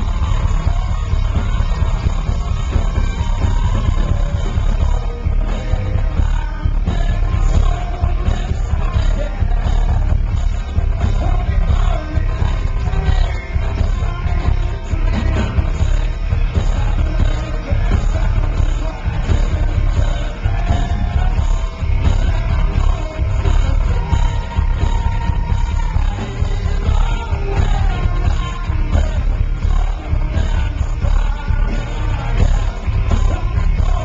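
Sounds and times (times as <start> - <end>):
live rock band playing: 0.0 - 34.0
male lead vocal: 0.0 - 34.0.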